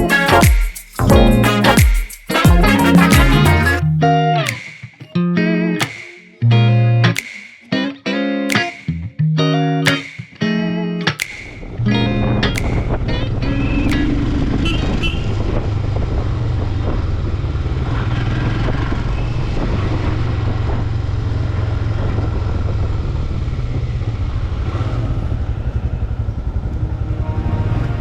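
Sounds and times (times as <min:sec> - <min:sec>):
wind and road noise: 0:11.6 - 0:28.0
motorcycle engine running: 0:14.3 - 0:27.1.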